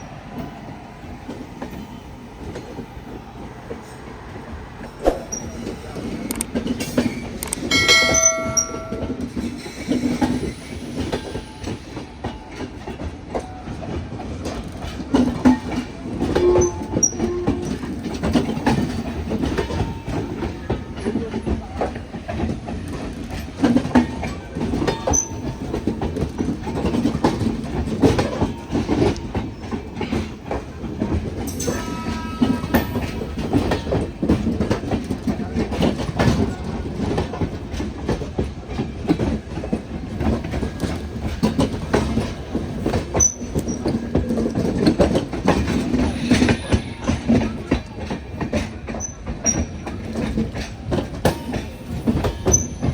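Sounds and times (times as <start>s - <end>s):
train wheels clattering: 0.0s - 52.9s
wheel squeal: 43.1s - 44.1s.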